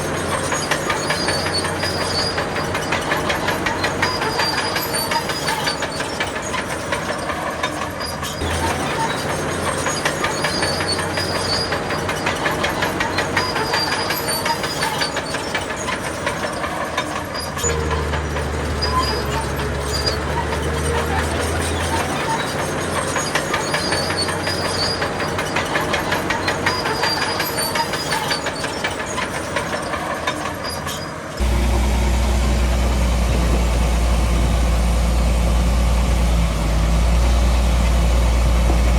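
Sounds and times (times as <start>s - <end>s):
diesel engine under load: 0.0s - 38.9s
steel tracks clattering: 0.0s - 38.9s
high squeals: 8.1s - 32.0s.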